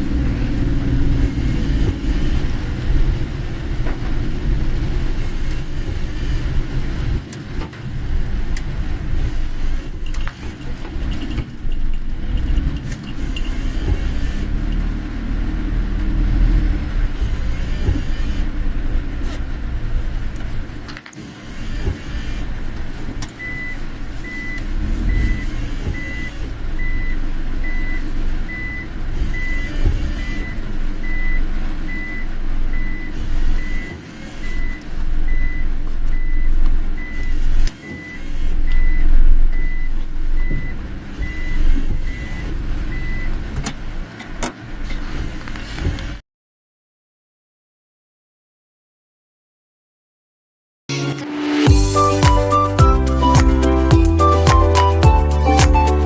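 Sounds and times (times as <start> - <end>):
car interior rumble in rain: 0.0 - 46.2
high electronic beeps: 50.9 - 56.0.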